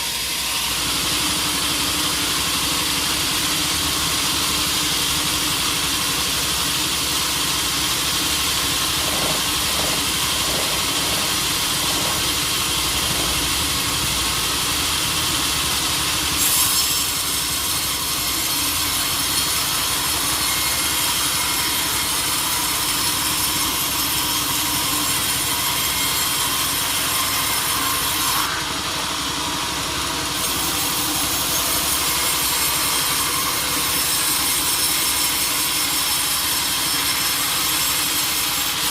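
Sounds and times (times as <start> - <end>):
sawmill blade cutting log: 0.0 - 38.9.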